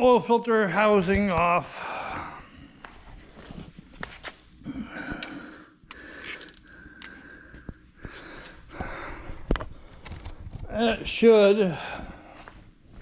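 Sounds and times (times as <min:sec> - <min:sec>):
metal tools clinking: 0:05.9 - 0:07.2.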